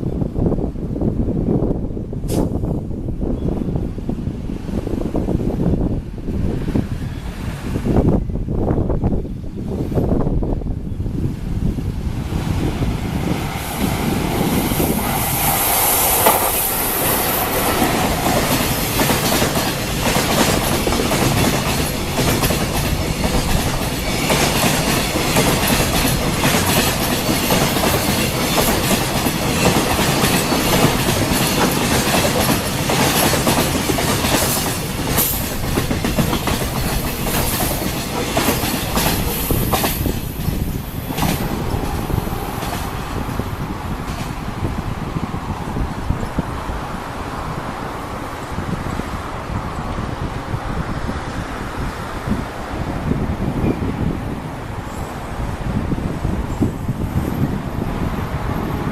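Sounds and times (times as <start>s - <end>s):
freight train wheels clacking: 12.6s - 44.6s.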